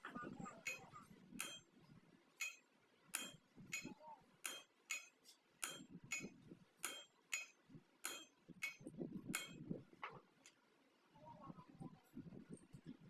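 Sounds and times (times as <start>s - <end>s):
hammer striking steel: 0.6s - 1.8s, 2.4s - 9.8s.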